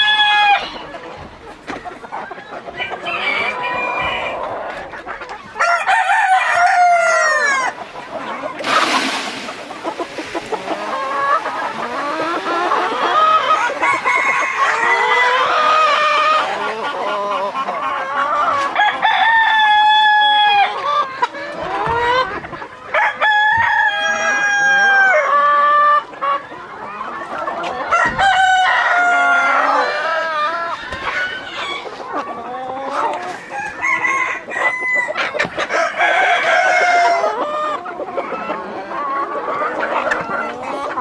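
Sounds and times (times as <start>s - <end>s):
roosters crowing: 0.0s - 1.1s, 2.6s - 20.8s, 22.9s - 25.5s, 27.7s - 37.8s
chickens clucking: 0.0s - 41.0s.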